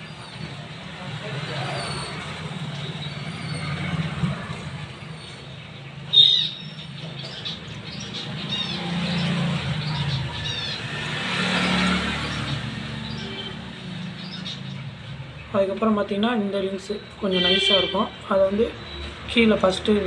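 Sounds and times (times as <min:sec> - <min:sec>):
small birds chirping: 0:04.9 - 0:20.0.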